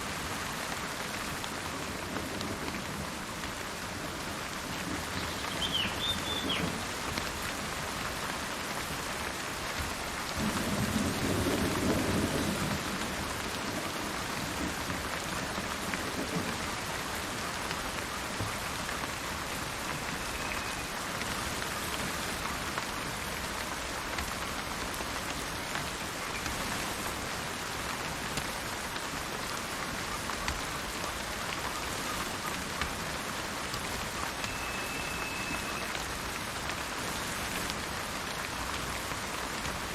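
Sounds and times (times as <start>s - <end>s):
steady rain: 0.0s - 39.9s
bird chirping: 5.2s - 6.7s, 34.5s - 35.9s
thin whistled bird notes: 5.2s - 6.7s, 20.2s - 20.9s, 34.4s - 36.0s
low roll of thunder: 10.4s - 14.8s.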